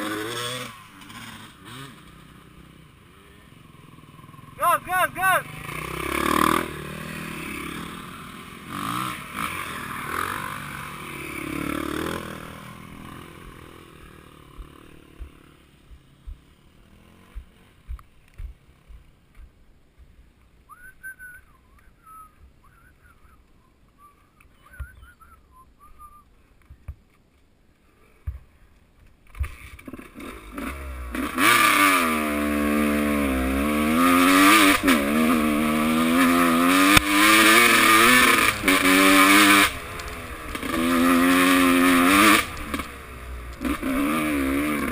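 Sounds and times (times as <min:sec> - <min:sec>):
motocross bike engine revving: 0:00.0 - 0:15.7, 0:16.3 - 0:17.9, 0:29.4 - 0:44.9.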